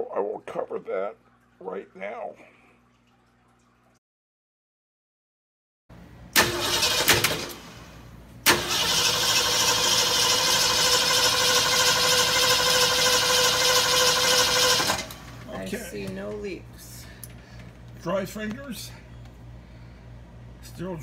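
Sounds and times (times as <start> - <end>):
car engine starting and running: 6.3 - 15.4.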